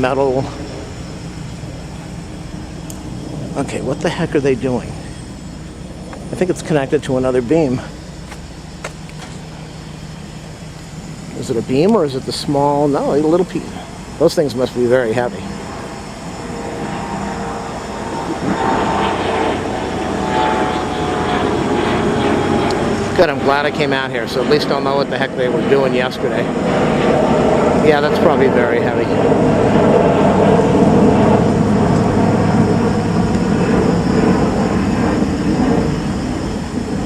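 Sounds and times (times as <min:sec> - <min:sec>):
jet airliner flying overhead: 0:00.0 - 0:37.0.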